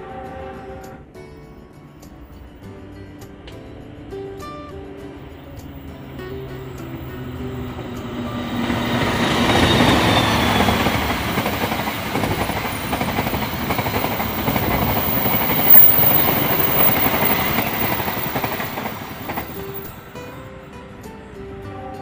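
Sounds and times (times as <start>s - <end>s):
diesel train passing: 4.5s - 21.9s.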